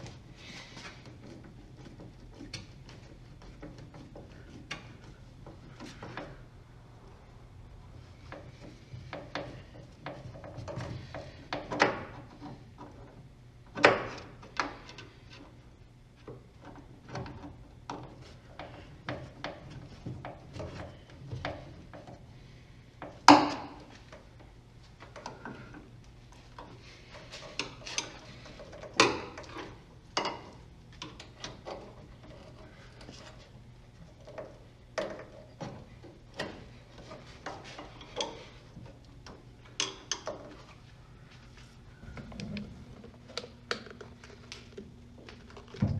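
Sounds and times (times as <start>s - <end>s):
tools knocking and clicking on parts: 8.2s - 15.6s, 23.0s - 25.9s, 26.6s - 40.7s.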